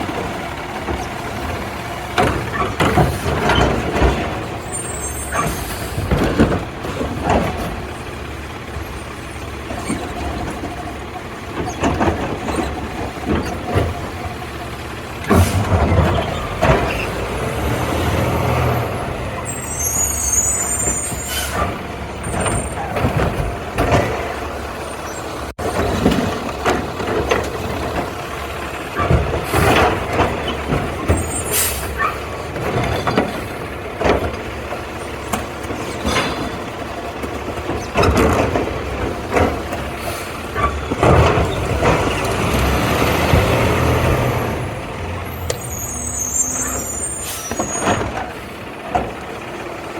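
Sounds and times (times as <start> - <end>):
clanks and knocks: 0.0 - 9.0, 9.6 - 17.5, 20.8 - 28.2, 28.9 - 44.6, 47.5 - 49.5
truck engine rumble: 0.0 - 49.9.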